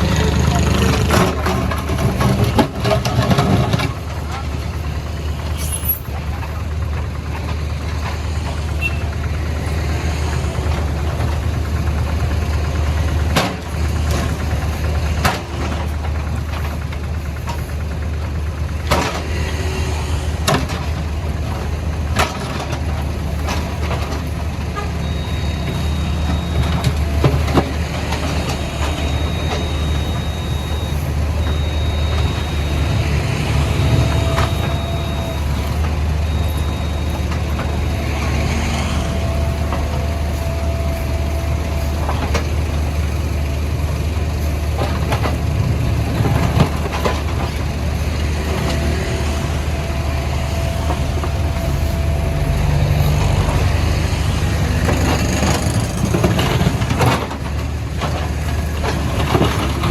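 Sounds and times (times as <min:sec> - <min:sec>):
diesel engine running: 0:00.0 - 0:59.9
high steady tone: 0:25.0 - 0:44.5.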